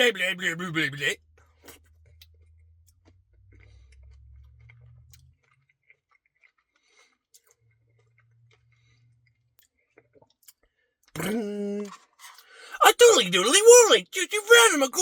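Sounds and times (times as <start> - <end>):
person chewing: 1.6 - 12.7.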